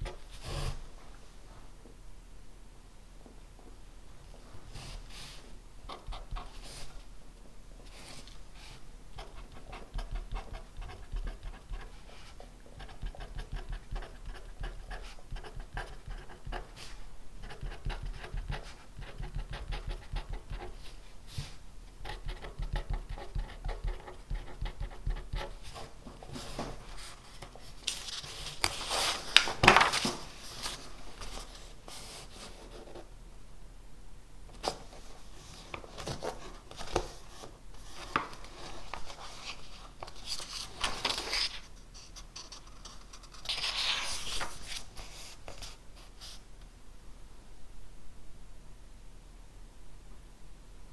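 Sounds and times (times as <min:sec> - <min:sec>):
pen scratching on paper: 0:09.2 - 0:20.9, 0:22.0 - 0:25.8
paper rustling: 0:25.5 - 0:32.7, 0:34.6 - 0:46.4.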